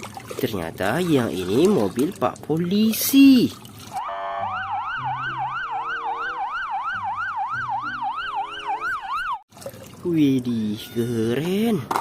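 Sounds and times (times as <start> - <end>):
low stepped electronic tune: 4.0 - 9.2
electronic police siren wailing: 4.0 - 9.4.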